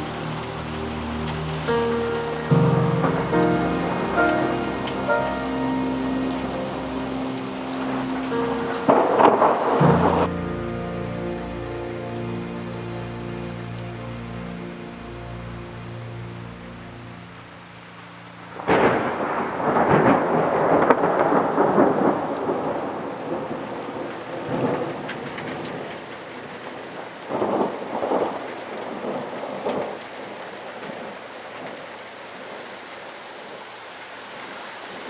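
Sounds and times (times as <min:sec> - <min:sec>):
thunder rumbling: 0:00.0 - 0:13.6, 0:18.5 - 0:26.6
steady rain: 0:00.0 - 0:35.0.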